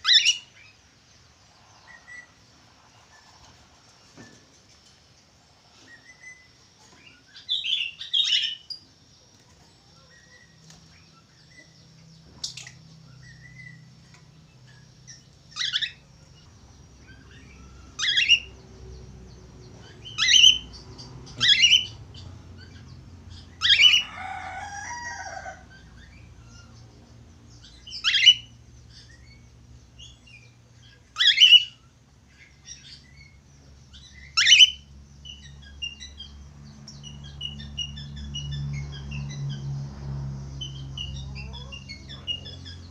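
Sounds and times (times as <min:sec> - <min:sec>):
budgerigar chirping: 0:00.0 - 0:00.5, 0:15.1 - 0:16.1, 0:17.0 - 0:18.5, 0:19.8 - 0:20.8, 0:21.4 - 0:22.0, 0:27.9 - 0:28.6, 0:30.9 - 0:31.8, 0:34.1 - 0:36.0.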